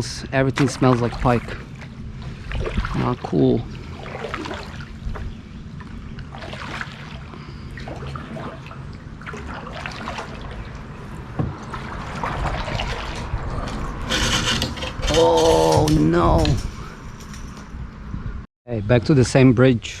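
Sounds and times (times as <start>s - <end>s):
water trickling and splashing: 0.0s - 14.1s.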